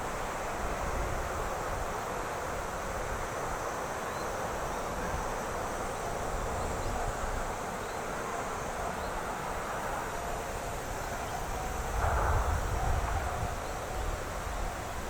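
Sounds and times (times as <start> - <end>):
strong wind on microphone: 10.8 - 15.0.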